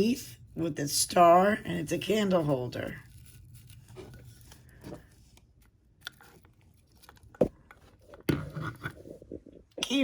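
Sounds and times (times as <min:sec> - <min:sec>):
clattering and rustling packaging: 0:02.3 - 0:09.5.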